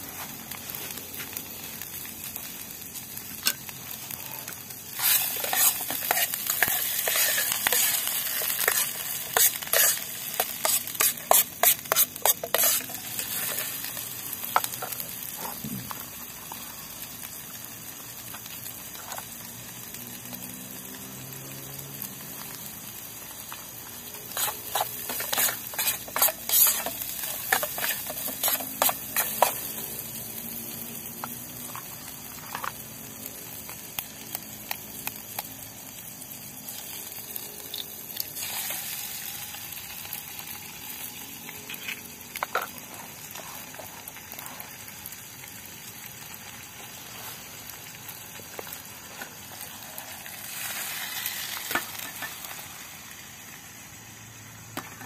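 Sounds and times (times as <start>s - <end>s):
food sizzling in oil: 0.0s - 55.0s
metal spoon scraping a pan: 3.4s - 15.6s, 24.2s - 30.0s.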